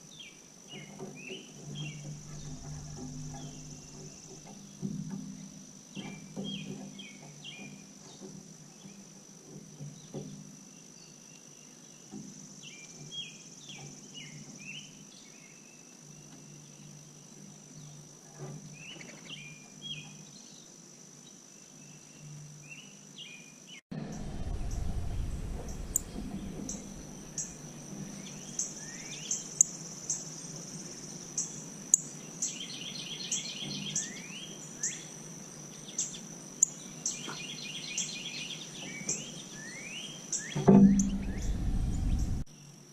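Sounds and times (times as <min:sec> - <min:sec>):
small birds chirping: 0:00.0 - 0:09.2, 0:09.8 - 0:42.5
low rumble: 0:23.9 - 0:28.9, 0:40.7 - 0:42.5.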